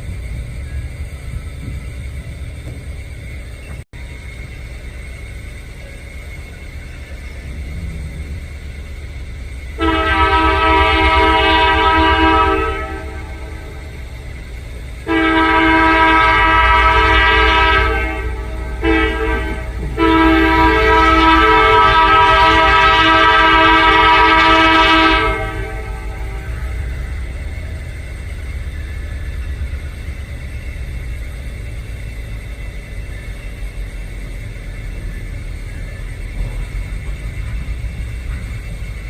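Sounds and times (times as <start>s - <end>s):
locomotive low rumble: 0.0s - 39.0s
locomotive air horn blasts: 9.8s - 13.9s, 15.0s - 26.9s.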